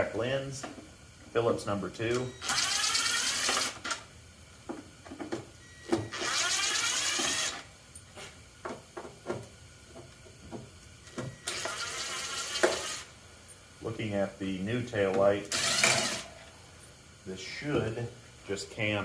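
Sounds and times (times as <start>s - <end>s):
cordless drill whining: 2.4s - 4.0s, 5.8s - 7.7s, 11.4s - 13.1s, 15.5s - 16.3s.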